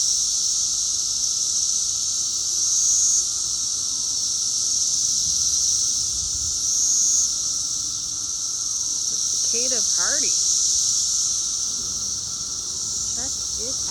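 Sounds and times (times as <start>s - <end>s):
cicadas buzzing: 0.0s - 13.9s.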